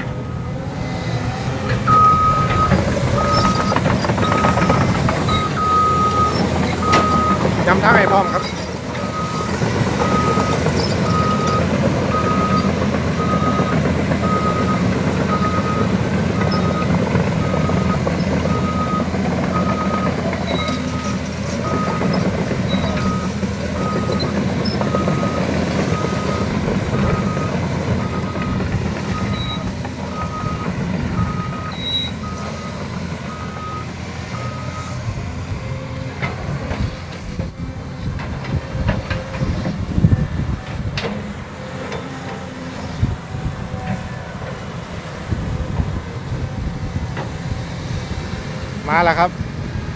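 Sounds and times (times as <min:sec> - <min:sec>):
truck reversing alarm beeping: 0:00.0 - 0:38.0
truck engine rumble: 0:00.0 - 0:49.9.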